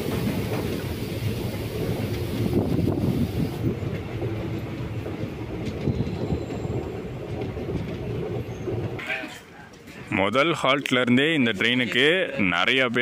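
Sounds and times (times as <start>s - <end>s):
wind on microphone: 0.0s - 9.0s
train wheels rumbling and clattering: 0.0s - 13.0s.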